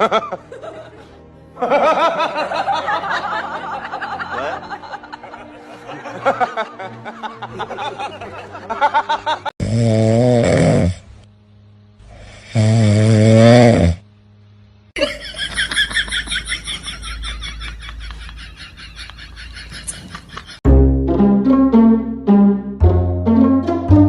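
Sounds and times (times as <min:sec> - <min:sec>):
loud snores: 0:09.6 - 0:11.1, 0:12.0 - 0:14.0.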